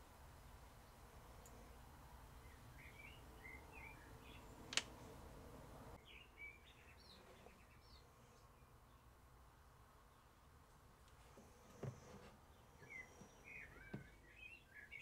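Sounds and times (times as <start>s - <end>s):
faint bird chirps: 0.8s - 4.7s, 6.0s - 9.2s, 11.3s - 15.0s.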